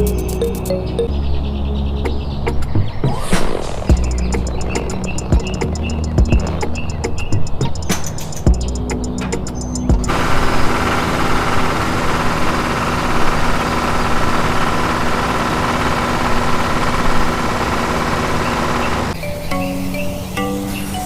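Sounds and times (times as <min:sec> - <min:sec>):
music: 0:00.0 - 0:10.1, 0:19.2 - 0:21.0.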